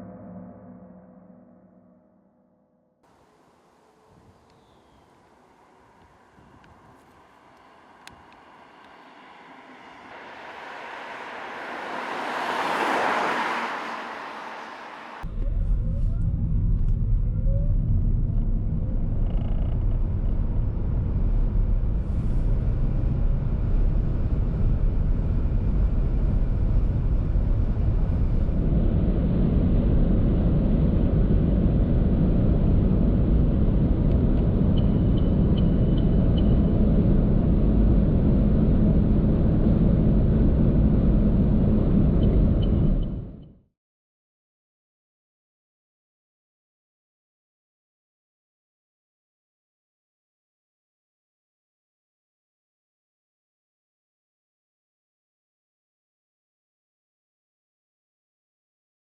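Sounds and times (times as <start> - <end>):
tyre and wind rumble: 4.0 - 43.5.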